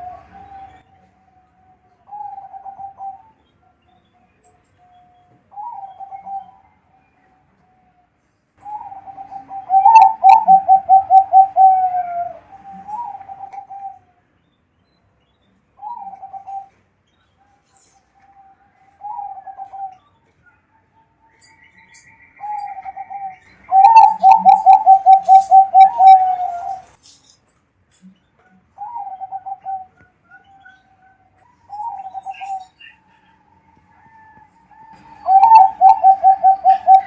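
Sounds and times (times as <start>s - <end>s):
dove cooing: 2.1s - 3.4s, 5.5s - 6.6s, 8.6s - 14.1s, 15.8s - 16.7s, 18.8s - 20.0s, 22.4s - 26.9s, 28.8s - 30.8s, 31.6s - 33.4s, 34.0s - 37.0s.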